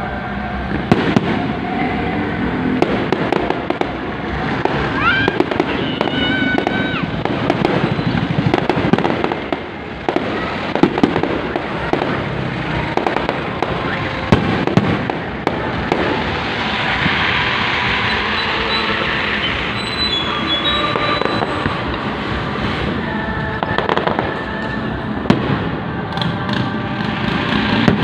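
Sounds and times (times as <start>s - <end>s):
fireworks crackling and popping: 0.0s - 28.0s
fireworks bangs: 0.2s - 28.0s
high rising whistle: 16.8s - 22.0s.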